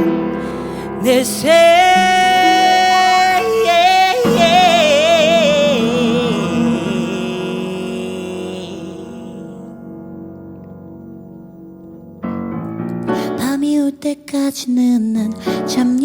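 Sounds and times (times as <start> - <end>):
sustained accompaniment chords: 0.0 - 12.2
woman singing: 0.8 - 9.4, 13.2 - 16.0.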